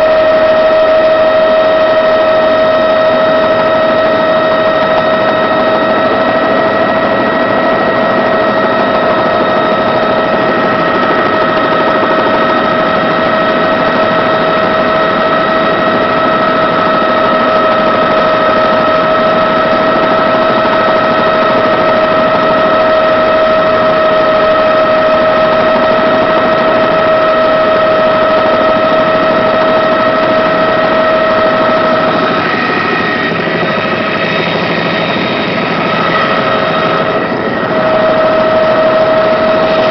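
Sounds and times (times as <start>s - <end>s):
helicopter engine and rotor noise: 0.0s - 39.9s
helicopter whine: 0.0s - 39.9s.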